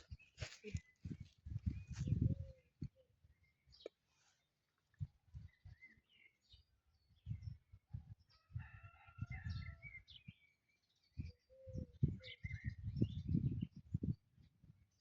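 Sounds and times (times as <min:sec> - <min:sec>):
small birds chirping: 0:00.0 - 0:15.0
faint rooster crowing: 0:08.0 - 0:10.2.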